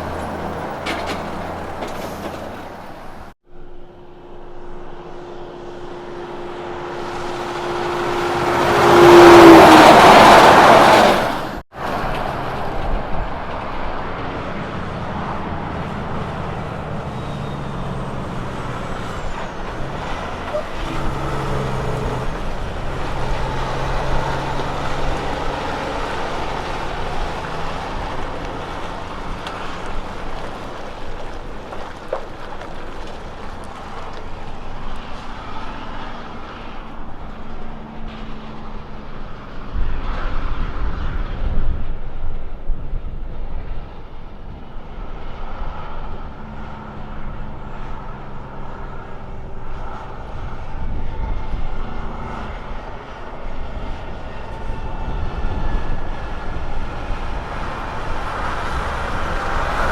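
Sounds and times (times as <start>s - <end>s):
diesel truck engine changing gear: 0.0s - 39.7s.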